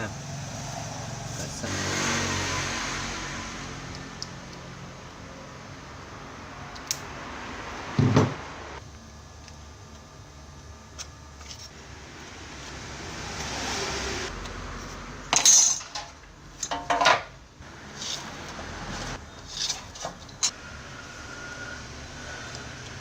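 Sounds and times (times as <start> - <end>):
metal clanks: 15.3 - 17.3
metal parts being handled: 15.3 - 17.4.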